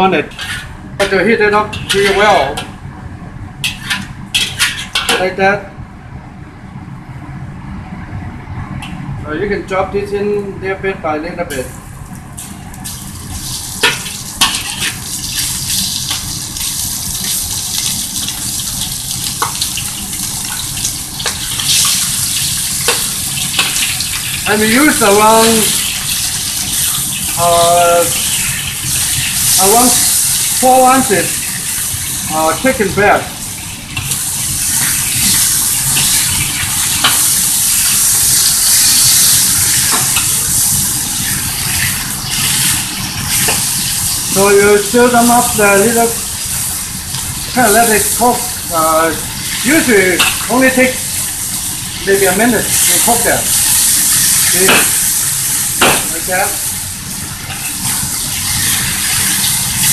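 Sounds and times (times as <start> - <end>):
metal spatula scraping wok: 0.2 - 0.8, 1.7 - 2.7, 3.6 - 5.3, 13.8 - 16.2
chicken sizzling in hot oil: 11.6 - 59.9.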